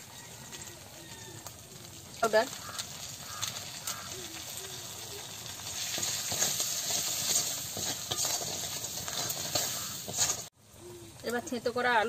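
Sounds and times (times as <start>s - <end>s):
spices frying in hot oil: 0.0s - 10.6s
metal spatula scraping a pan: 2.6s - 10.5s.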